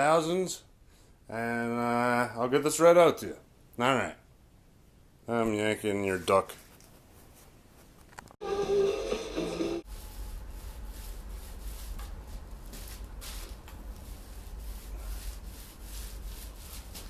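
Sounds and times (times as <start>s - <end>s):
rubbing and scraping: 9.8s - 17.0s.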